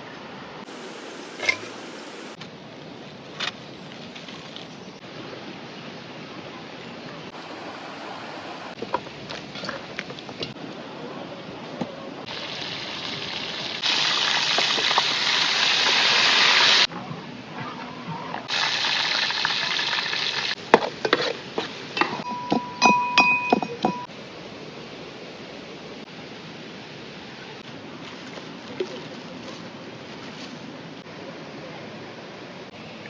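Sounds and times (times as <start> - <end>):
running water hissing: 0.6 - 2.4
loud dense hiss: 0.6 - 2.8.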